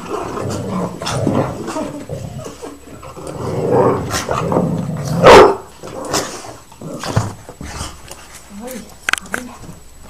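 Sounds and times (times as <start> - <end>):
dogs growling: 0.0 - 8.2
dog barking: 5.2 - 5.7.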